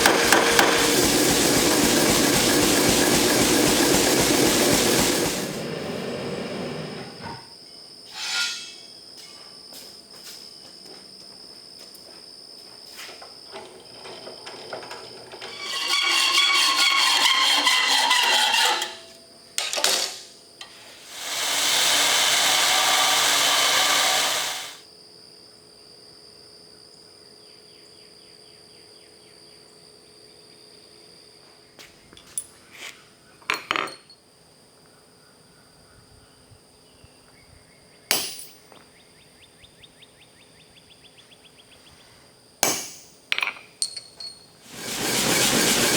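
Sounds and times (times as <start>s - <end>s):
harsh power tool grinding metal: 0.0s - 5.6s, 15.3s - 19.0s, 21.0s - 24.8s, 44.7s - 45.9s.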